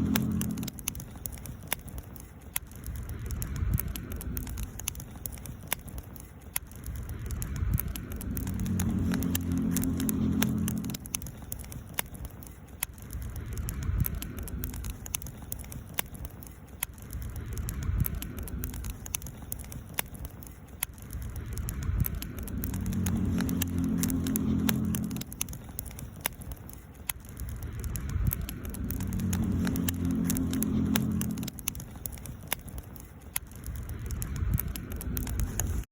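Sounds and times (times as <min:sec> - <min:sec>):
campfire crackling and popping: 0:00.0 - 0:35.9
low steady hum: 0:00.0 - 0:35.9.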